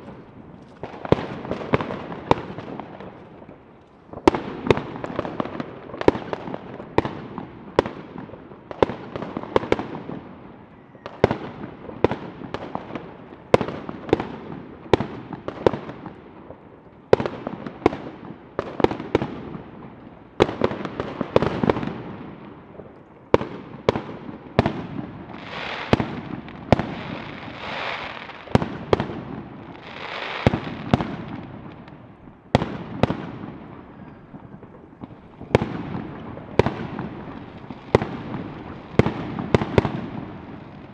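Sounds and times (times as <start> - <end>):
fireworks banging: 0.0 - 40.9
crackling hisses of bursting shells: 26.7 - 28.6.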